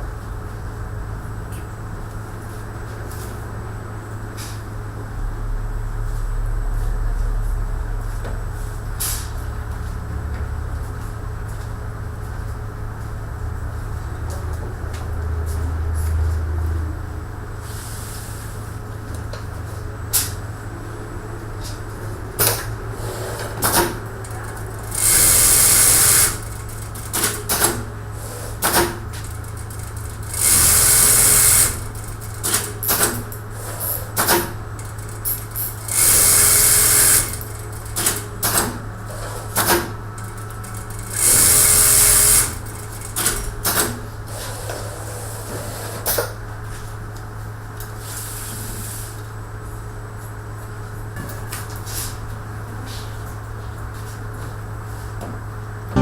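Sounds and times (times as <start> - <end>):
sewing machine motor hum: 22.4 - 45.6
machine clicks and clacks: 23.3 - 27.9, 28.5 - 44.1.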